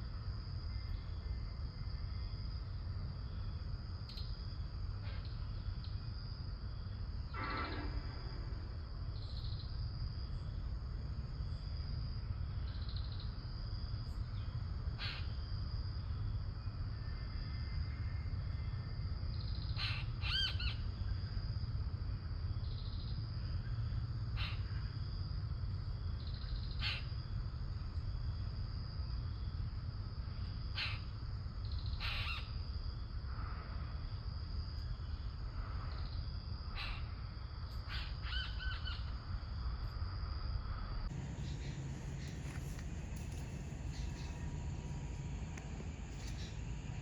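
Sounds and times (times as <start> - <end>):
constant low rumble: 0.0 - 47.0
steady high-pitched whine: 0.0 - 47.0
birds calling: 41.1 - 47.0.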